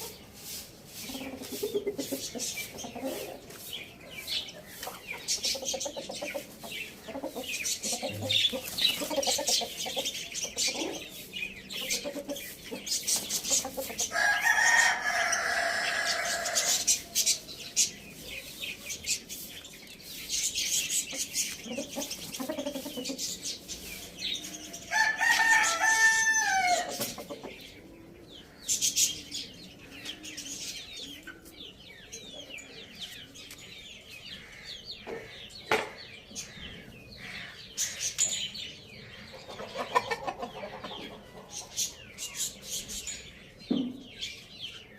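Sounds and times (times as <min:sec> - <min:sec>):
hens clucking: 0:00.0 - 0:17.5, 0:20.8 - 0:24.2, 0:25.2 - 0:28.1, 0:39.1 - 0:42.0
small birds chirping: 0:00.0 - 0:44.9
rooster crowing: 0:14.1 - 0:16.8, 0:24.9 - 0:26.9.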